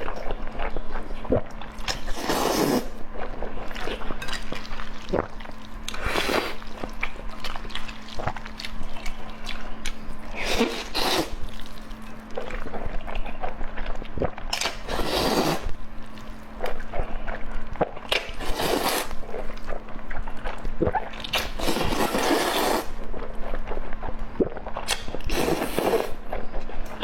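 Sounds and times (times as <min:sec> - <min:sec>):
noodle slurping: 0:01.3 - 0:03.0, 0:10.4 - 0:11.7, 0:14.2 - 0:15.7, 0:18.2 - 0:19.8, 0:20.8 - 0:23.0, 0:24.4 - 0:26.4
wet chewing and smacking: 0:03.0 - 0:10.4, 0:11.4 - 0:14.8, 0:19.0 - 0:21.6, 0:22.9 - 0:25.4, 0:26.1 - 0:27.0.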